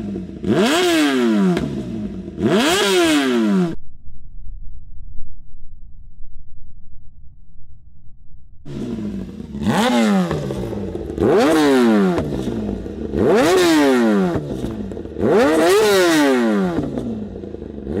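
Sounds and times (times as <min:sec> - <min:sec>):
motorcycle engine idling and revving: 0:00.0 - 0:03.8, 0:08.6 - 0:18.0.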